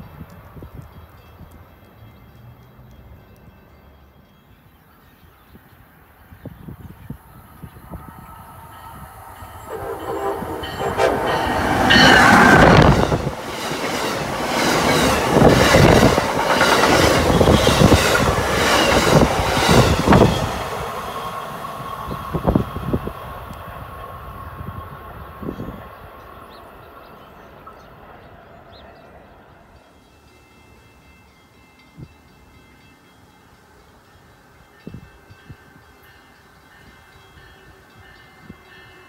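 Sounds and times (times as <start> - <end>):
train passing at speed: 0.0 - 39.0
rhythmic clickety-clack of rails: 7.0 - 39.0
train horn blasts: 8.0 - 13.3.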